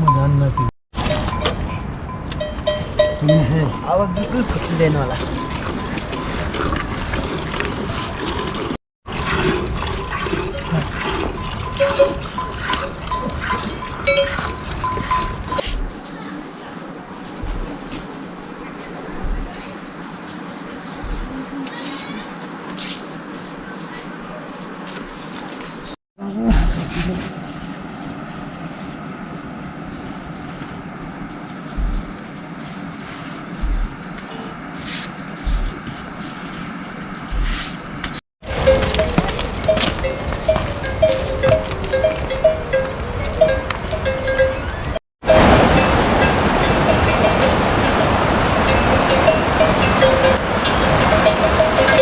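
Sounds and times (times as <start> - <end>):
water rushing: 2.9 - 26.0, 38.4 - 52.0
low thumps: 17.4 - 19.6, 21.0 - 21.5, 30.6 - 32.4, 33.5 - 34.2, 35.4 - 36.1, 37.2 - 37.6
insect chirping: 26.8 - 44.9.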